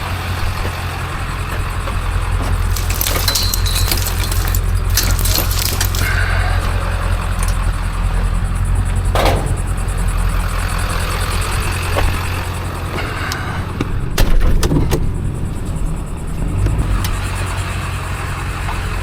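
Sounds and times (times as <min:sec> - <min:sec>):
vehicle engine and road rumble: 0:00.0 - 0:19.0
clicks and knocks: 0:02.5 - 0:06.3.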